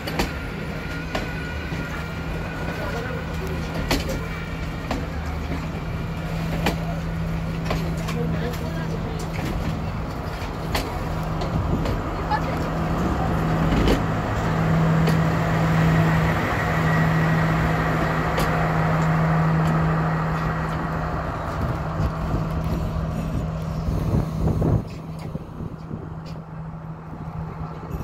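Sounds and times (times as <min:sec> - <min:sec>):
train carriages rolling past: 0:00.0 - 0:28.0.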